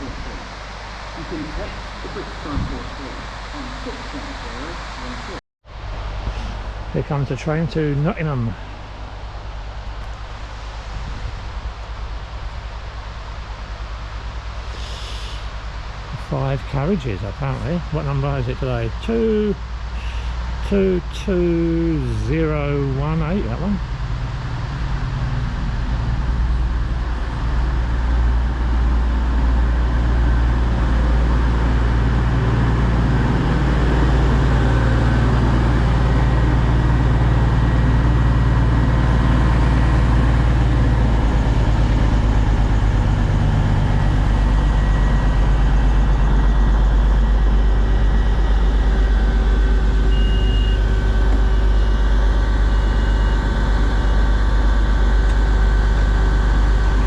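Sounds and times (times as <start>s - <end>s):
diesel train engines droning: 0.0s - 57.0s
short high beeps: 50.1s - 50.9s.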